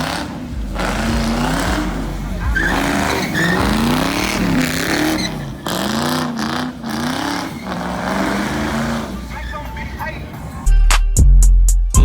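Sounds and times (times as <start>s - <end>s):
car engine revving hard: 0.0s - 9.3s.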